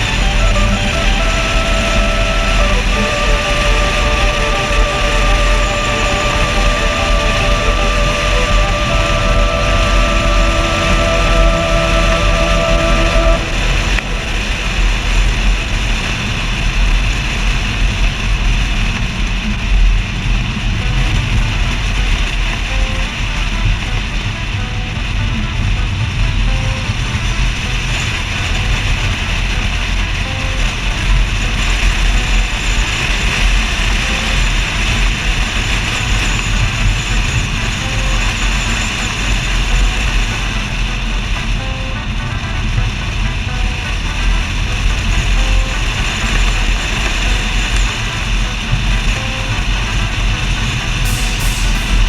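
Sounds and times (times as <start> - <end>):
steady tones: 0.0 - 18.6, 20.4 - 52.0
road noise of moving car: 0.0 - 52.0
steady hiss: 29.7 - 52.0.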